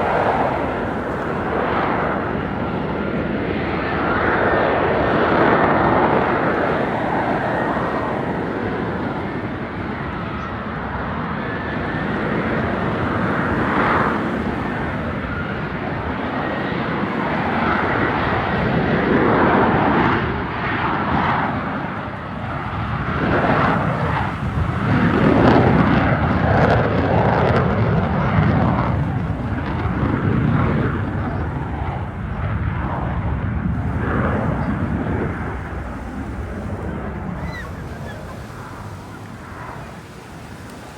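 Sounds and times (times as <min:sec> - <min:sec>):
jet engine rumble: 0:00.0 - 0:40.9.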